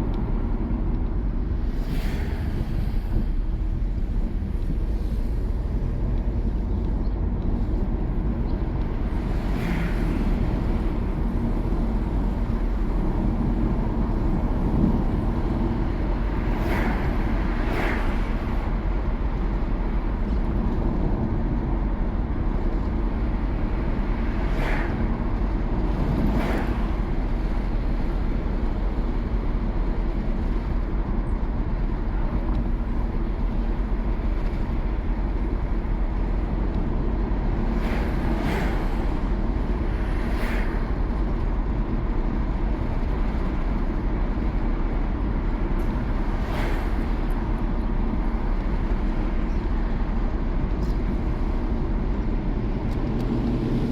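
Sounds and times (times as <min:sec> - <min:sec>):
car engine and tyre noise: 0:00.0 - 0:53.9.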